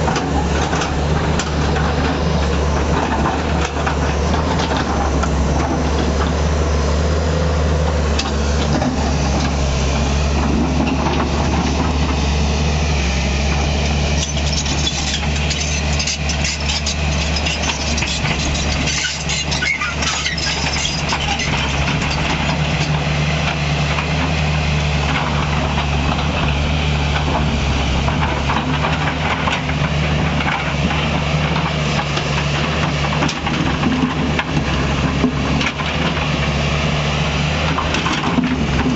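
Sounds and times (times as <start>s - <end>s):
knocks and clatter: 0.0s - 6.4s, 10.3s - 12.2s, 25.0s - 36.4s, 37.6s - 38.9s
excavator diesel engine running: 0.0s - 38.9s.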